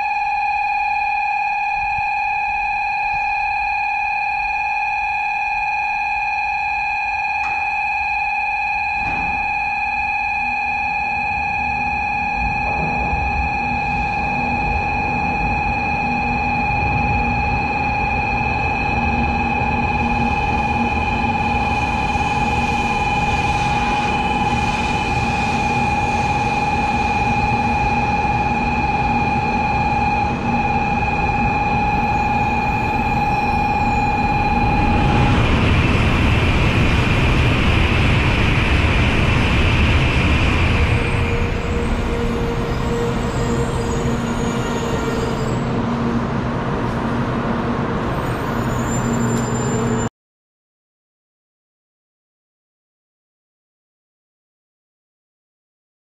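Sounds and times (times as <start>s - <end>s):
steady high tone: 0.0s - 50.1s
steady low hum: 11.2s - 50.0s
rush of train noise: 11.2s - 50.1s.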